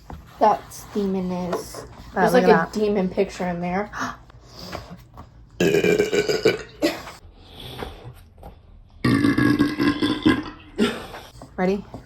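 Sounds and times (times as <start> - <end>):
person burping loudly: 5.6 - 7.1, 9.0 - 11.2.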